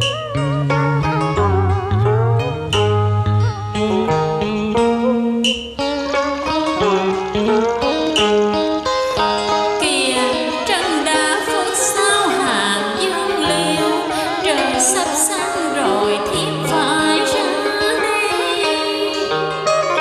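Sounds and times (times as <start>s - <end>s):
plucked-string accompaniment: 0.0s - 20.0s
woman singing with vibrato: 9.8s - 19.6s.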